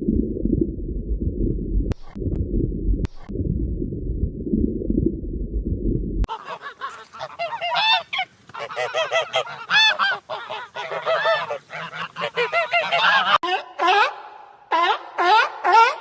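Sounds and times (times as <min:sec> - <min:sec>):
low rumbling noise: 0:00.0 - 0:06.3
geese honking: 0:06.3 - 0:16.0.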